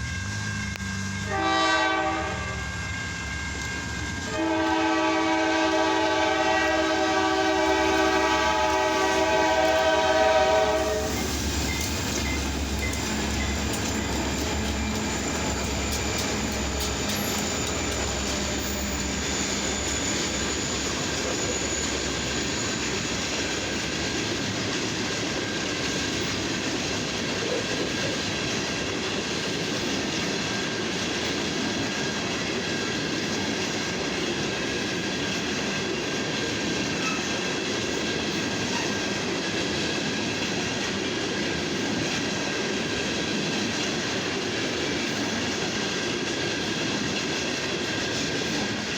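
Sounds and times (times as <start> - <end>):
railroad cars rumbling past: 0.0 - 48.9
high-pitched wheel squeal: 10.8 - 24.0.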